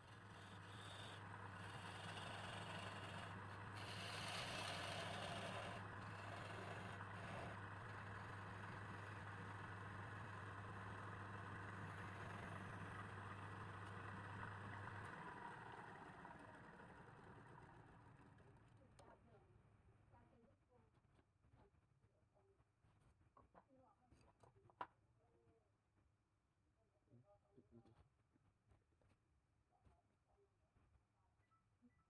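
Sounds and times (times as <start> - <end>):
lathe motor humming: 0.0 - 18.6
motor winding down: 0.0 - 18.6.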